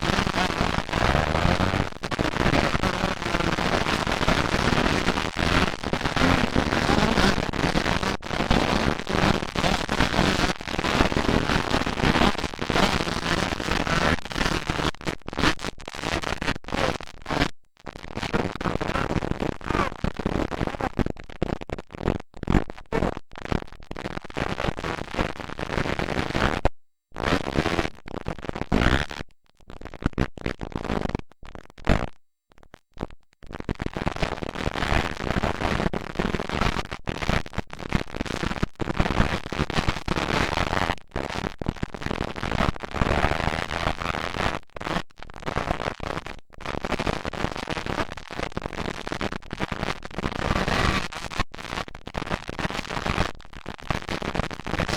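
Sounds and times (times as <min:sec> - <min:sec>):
rough unpitched microphone noise: 0:00.0 - 0:04.8.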